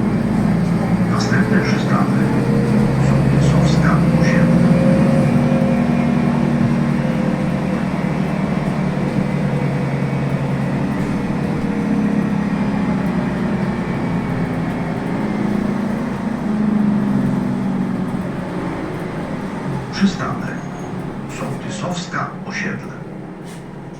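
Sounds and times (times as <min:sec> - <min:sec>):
bus engine drone: 0:00.0 - 0:23.9
road and tyre noise: 0:00.0 - 0:23.9.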